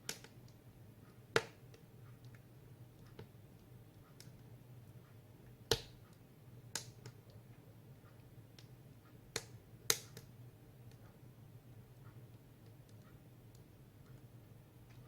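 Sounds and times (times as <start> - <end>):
wood fire crackling and popping: 0.0 - 0.6, 1.3 - 2.4, 5.5 - 6.0, 6.6 - 7.4, 8.5 - 10.4
low steady hum: 0.0 - 15.0.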